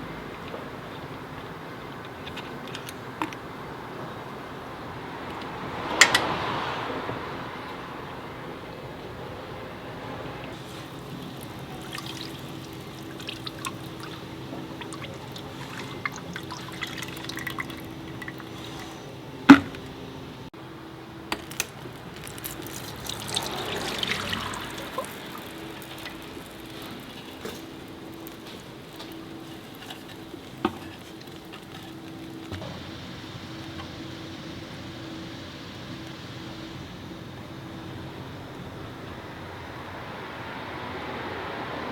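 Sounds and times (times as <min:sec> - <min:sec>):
fluid draining and dripping: 0:10.4 - 0:20.2, 0:21.3 - 0:32.6.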